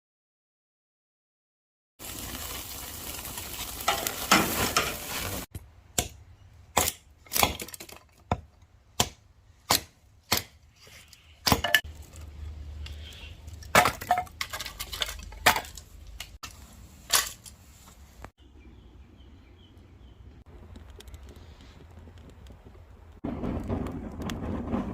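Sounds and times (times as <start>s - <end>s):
food sizzling: 2.0s - 5.5s.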